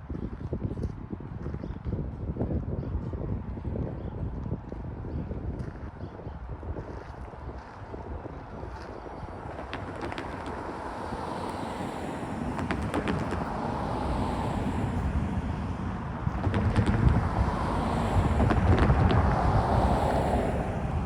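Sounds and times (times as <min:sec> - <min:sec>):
wind on microphone: 0:00.0 - 0:21.0
low train rumble: 0:07.3 - 0:21.0.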